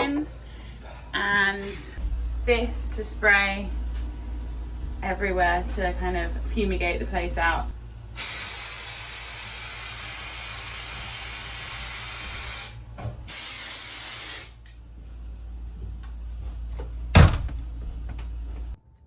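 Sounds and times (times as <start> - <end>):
aerosol spray can hissing: 8.2 - 14.6.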